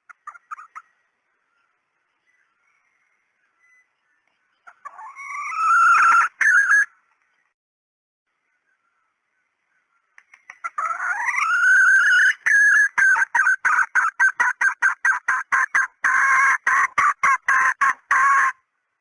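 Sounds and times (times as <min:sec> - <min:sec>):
hen calling with clucks: 0:00.0 - 0:01.0, 0:04.6 - 0:07.0, 0:09.9 - 0:18.7.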